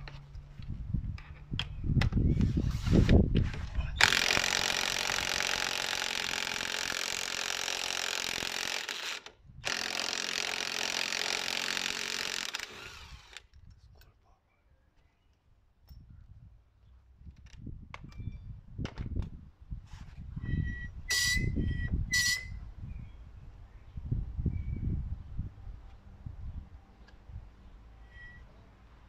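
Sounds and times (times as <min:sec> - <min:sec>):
power tool running: 0:04.0 - 0:13.4.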